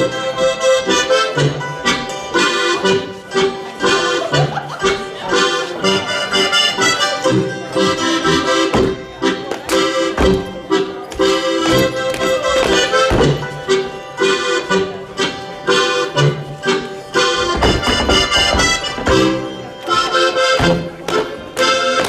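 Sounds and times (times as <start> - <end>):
accordion dance tune: 0.0 - 22.0
dancers slapping and stomping: 17.4 - 19.4.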